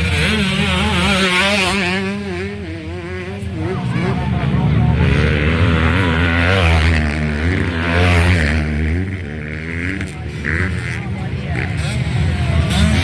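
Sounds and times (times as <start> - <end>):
motocross bike engines revving: 0.0 - 13.0.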